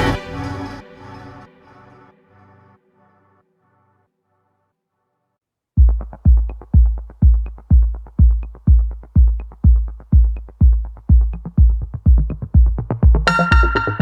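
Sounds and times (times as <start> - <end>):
electronic dance music: 0.0 - 1.5, 5.8 - 14.0.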